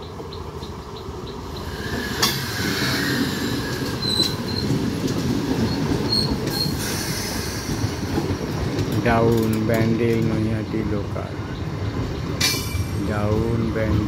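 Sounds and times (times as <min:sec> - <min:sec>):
train wheels rumbling on rails: 0:00.0 - 0:14.0
high wheel squeals: 0:01.6 - 0:04.8, 0:05.6 - 0:07.8
sharp clank: 0:12.4 - 0:13.0.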